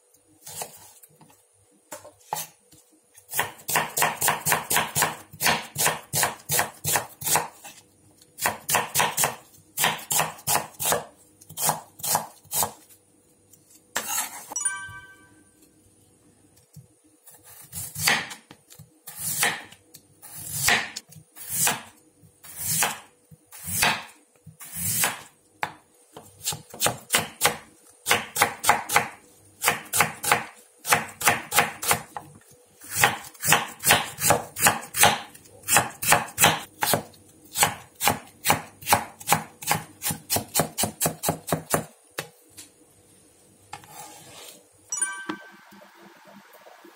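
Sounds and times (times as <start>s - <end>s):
knife chopping on wooden board: 3.3s - 7.8s, 8.4s - 12.8s, 18.0s - 18.5s, 19.2s - 19.8s, 20.6s - 21.9s, 22.6s - 23.0s, 23.7s - 24.1s, 24.8s - 32.2s, 32.9s - 42.3s.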